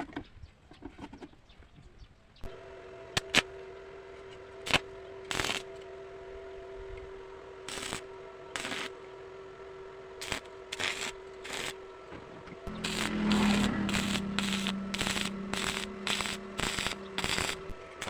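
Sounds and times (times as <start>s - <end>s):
mechanical hum: 1.9s - 18.0s.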